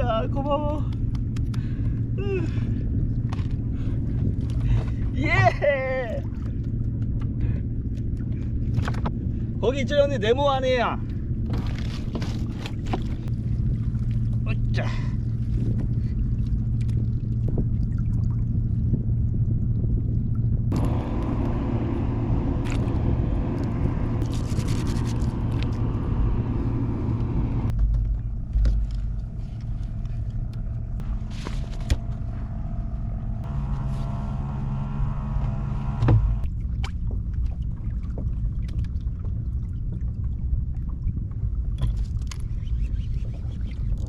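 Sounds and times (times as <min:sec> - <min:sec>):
small outboard motor running: 0:20.6 - 0:37.2.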